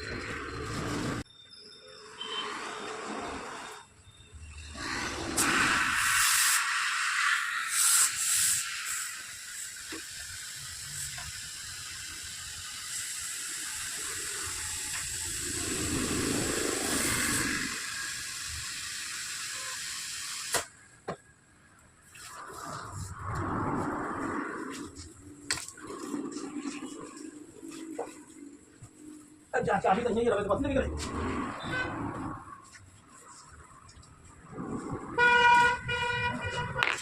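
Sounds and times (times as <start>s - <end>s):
compressed air hissing: 4.6s - 20.8s.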